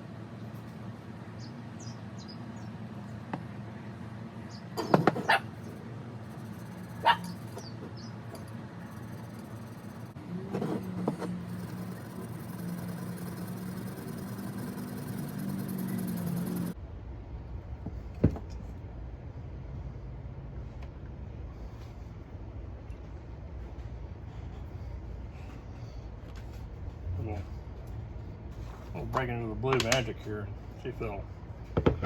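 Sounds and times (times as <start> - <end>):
steady low hum: 0.0 - 32.0
dog yipping: 5.2 - 5.8, 6.8 - 7.7.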